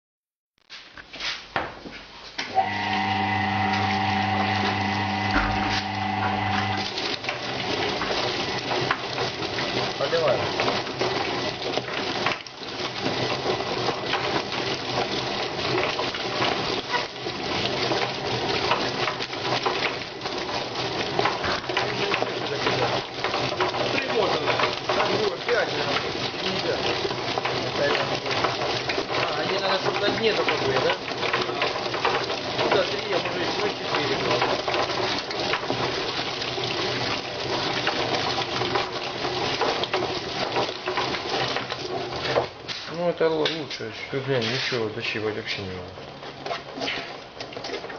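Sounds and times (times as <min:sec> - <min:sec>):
motor hum: 0:02.6 - 0:07.3
chicken plucking machine rattling: 0:02.6 - 0:47.9
rushing water: 0:02.6 - 0:47.9.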